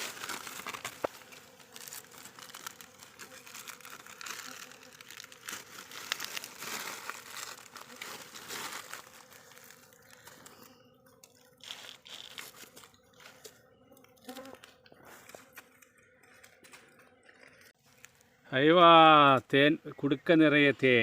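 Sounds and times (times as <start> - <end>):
wax covering tearing and crackling: 0.0 - 13.5.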